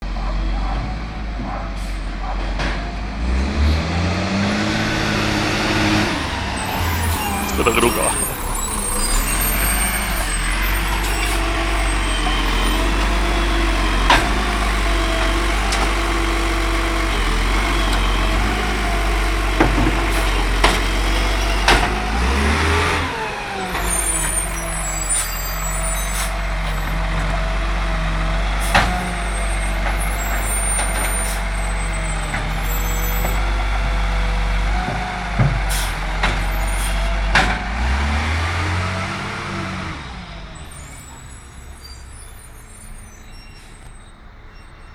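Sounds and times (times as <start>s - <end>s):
bin truck engine running: 2.9s - 25.0s.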